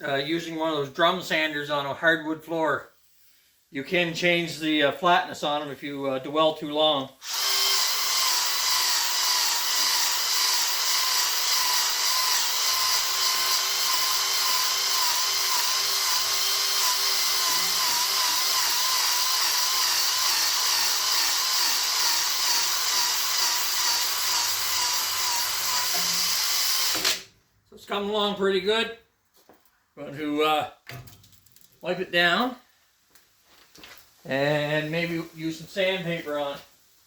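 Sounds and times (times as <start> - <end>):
electric drill motor whine: 7.2 - 27.2.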